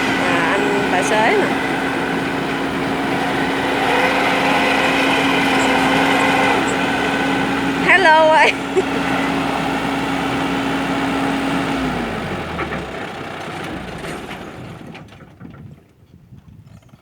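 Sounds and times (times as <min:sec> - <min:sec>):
tractor engine running: 0:00.0 - 0:15.8.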